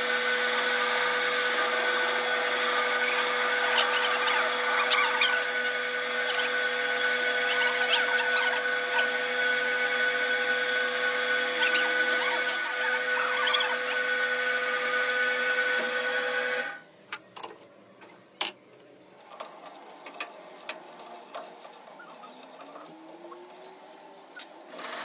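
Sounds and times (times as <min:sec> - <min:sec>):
power tool motor whining: 0:00.0 - 0:16.8.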